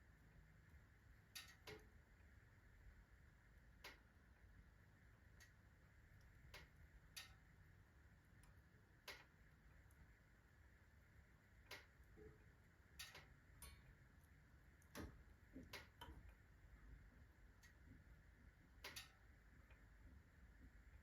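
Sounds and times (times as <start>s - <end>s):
stove metal ticking: 1.3s - 1.9s, 3.8s - 4.1s, 6.2s - 7.5s, 8.4s - 9.9s, 11.6s - 16.4s, 18.8s - 20.0s.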